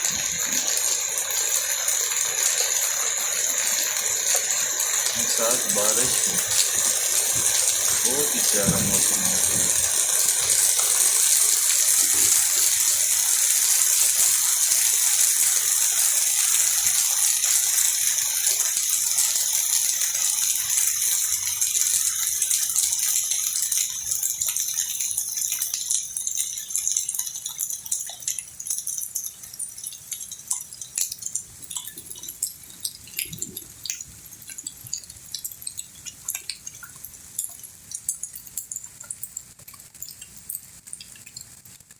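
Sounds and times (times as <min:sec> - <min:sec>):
heavy rain falling: 0:00.0 - 0:24.0
water dripping and tapping: 0:00.0 - 0:41.9.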